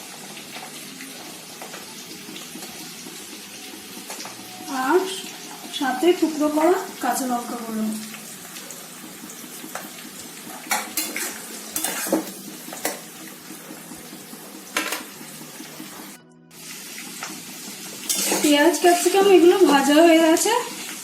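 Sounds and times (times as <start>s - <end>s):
vegetables sizzling in oil: 0.0s - 21.0s
spoon scraping and clinking pan: 10.7s - 13.1s, 18.0s - 18.6s.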